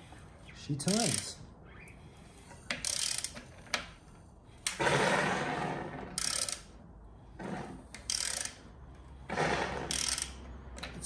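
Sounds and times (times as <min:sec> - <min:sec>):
engine turned over by hand: 0:09.2 - 0:11.0.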